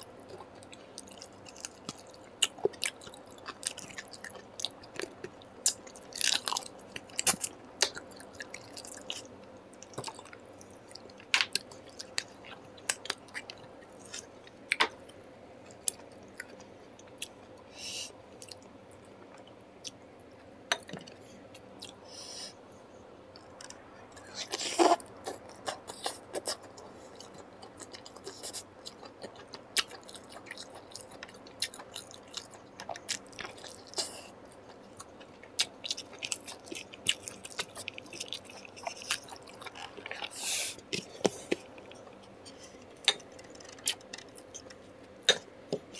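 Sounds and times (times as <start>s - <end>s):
food crunching: 23.4s - 45.9s.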